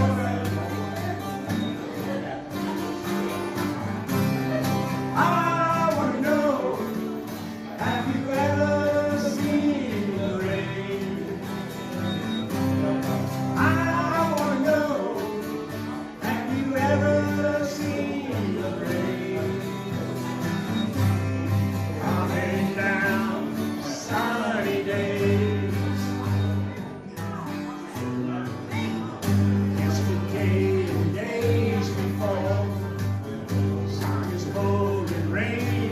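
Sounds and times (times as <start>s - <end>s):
strummed acoustic guitar: 0.0s - 35.9s
person singing: 4.5s - 11.7s, 13.5s - 20.2s, 21.8s - 26.4s, 28.0s - 35.9s.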